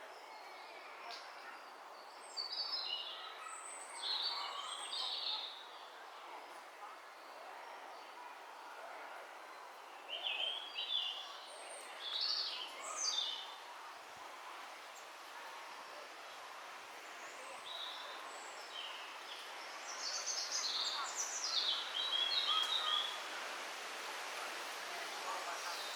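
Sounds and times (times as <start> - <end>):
small birds singing: 10.0 - 13.6, 17.1 - 23.2
steady background hiss: 12.8 - 25.9.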